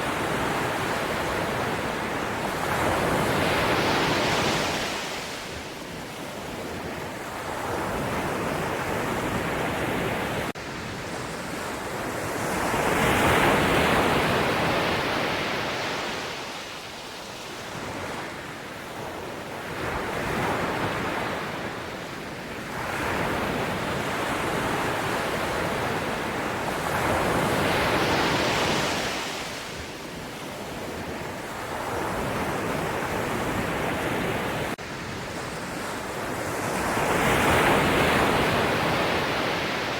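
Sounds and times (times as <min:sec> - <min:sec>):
ocean waves breaking: 0:22.8 - 0:29.9, 0:30.5 - 0:39.9.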